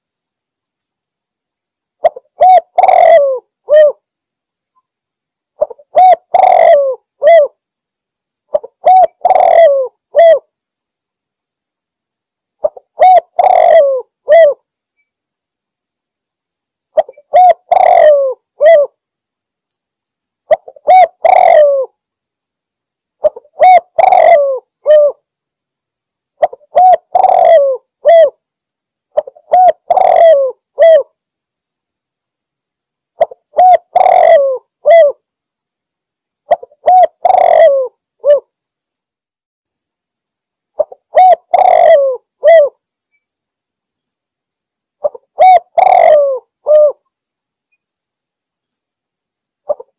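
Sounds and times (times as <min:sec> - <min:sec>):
dove cooing: 0:02.0 - 0:04.0, 0:05.6 - 0:07.6, 0:08.5 - 0:10.5, 0:12.6 - 0:14.6, 0:17.0 - 0:19.0, 0:20.5 - 0:22.0, 0:23.2 - 0:25.2, 0:26.4 - 0:28.4, 0:29.2 - 0:31.1, 0:33.2 - 0:35.2, 0:36.5 - 0:38.5, 0:40.8 - 0:42.8, 0:45.0 - 0:47.1, 0:49.7 - 0:49.9.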